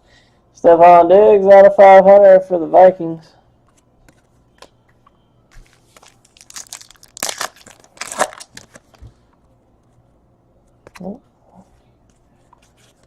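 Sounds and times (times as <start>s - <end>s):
plastic packaging crinkling: 5.5s - 9.1s.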